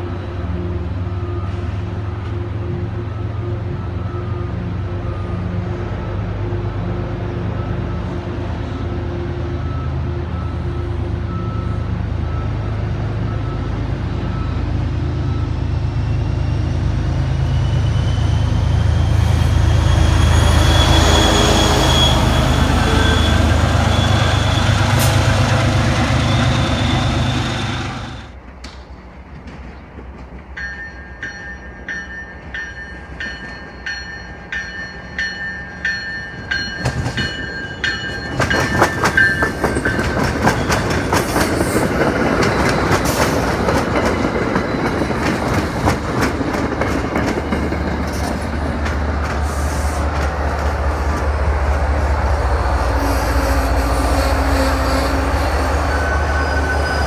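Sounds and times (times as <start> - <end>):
diesel locomotive rumble: 0.0 - 30.6, 32.4 - 57.0
wheel squeal: 17.5 - 28.3, 53.1 - 57.0
train bell ringing: 30.5 - 45.6, 55.8 - 57.0
train wheels clattering over joints: 36.8 - 49.5.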